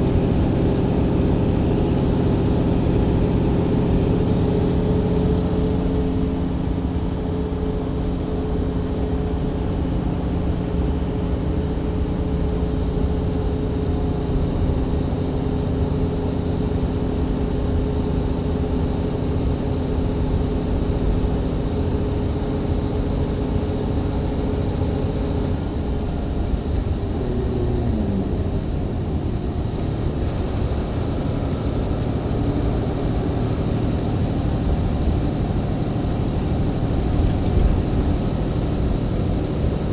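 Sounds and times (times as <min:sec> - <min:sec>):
bus diesel engine: 0:00.0 - 0:39.9
road rumble: 0:00.0 - 0:39.9.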